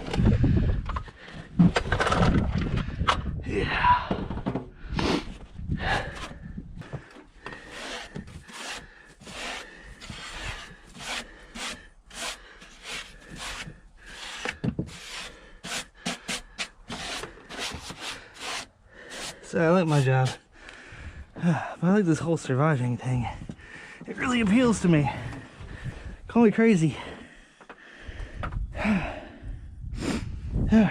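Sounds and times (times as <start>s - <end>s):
short scraping and rubbing: 7.5s - 20.4s.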